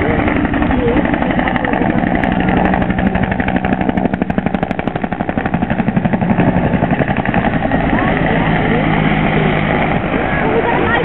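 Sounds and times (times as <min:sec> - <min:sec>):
low-flying aircraft engine pulsing: 0:00.0 - 0:11.0.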